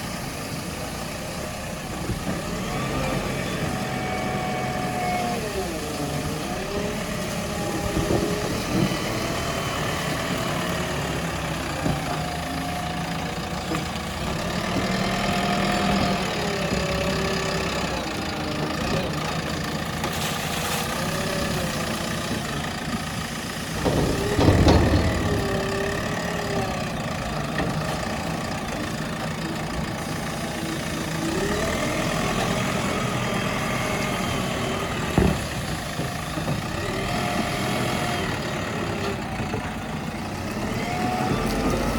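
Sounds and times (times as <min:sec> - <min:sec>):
backhoe diesel engine running: 0:00.0 - 0:41.9
heavy clunk: 0:23.6 - 0:28.7, 0:32.6 - 0:40.4.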